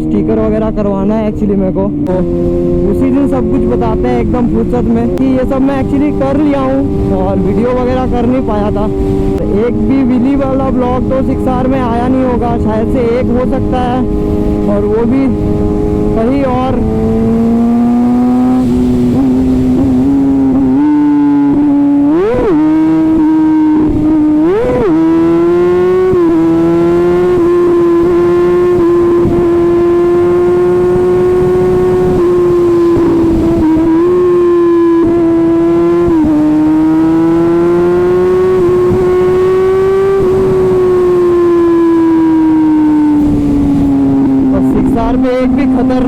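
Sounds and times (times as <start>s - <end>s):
motorcycle engine at high revs: 0.0s - 46.0s
wind rush: 0.0s - 46.0s.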